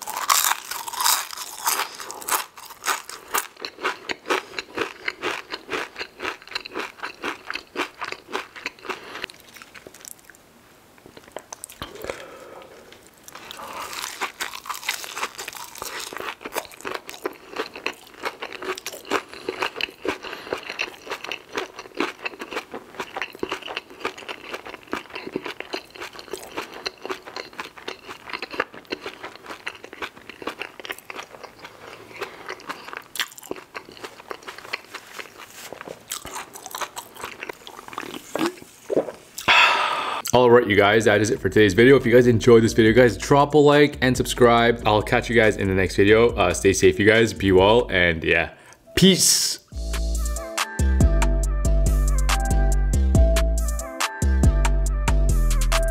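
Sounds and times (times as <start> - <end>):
man chewing crunchy food: 0.0 - 10.4, 11.1 - 40.3.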